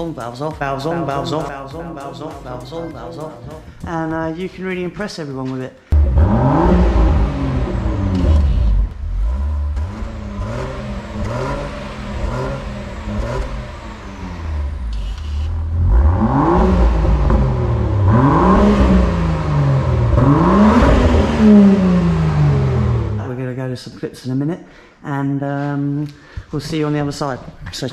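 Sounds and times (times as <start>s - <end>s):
car engine revving: 0.6s - 3.8s, 5.9s - 23.4s.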